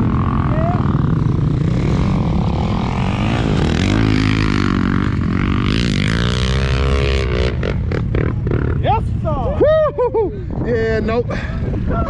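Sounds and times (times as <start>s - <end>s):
atv engine revving: 0.0s - 9.0s.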